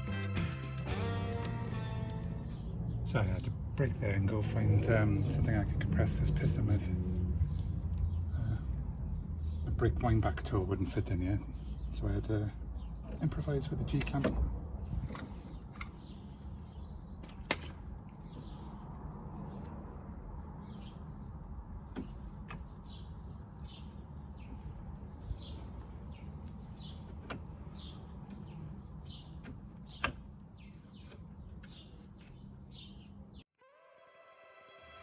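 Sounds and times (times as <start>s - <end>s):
bird chirping: 2.2s - 5.6s, 20.6s - 33.5s.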